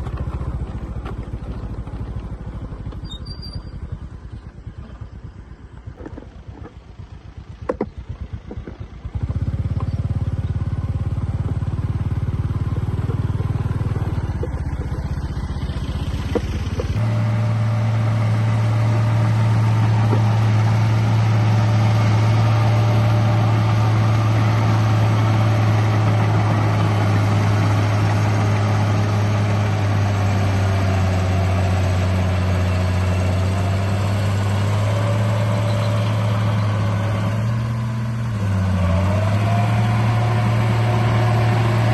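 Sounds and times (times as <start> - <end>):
low engine-like drone: 0.0 - 41.9.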